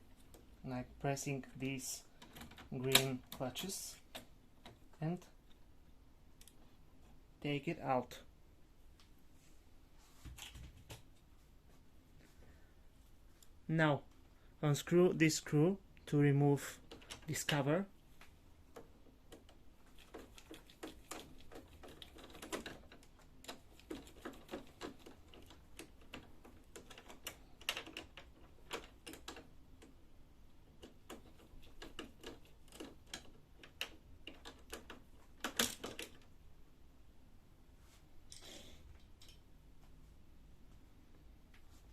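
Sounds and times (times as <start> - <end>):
plastic parts being handled: 18.7 - 30.0.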